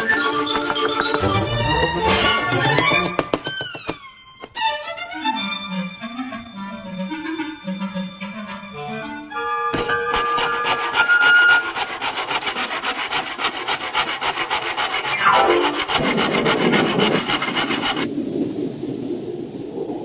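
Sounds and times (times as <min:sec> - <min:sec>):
rapid rasping strokes: 0:09.8 - 0:18.1.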